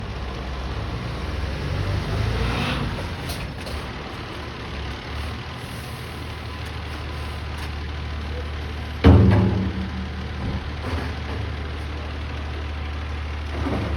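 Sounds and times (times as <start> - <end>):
garbage truck diesel engine running: 3.0 - 13.9.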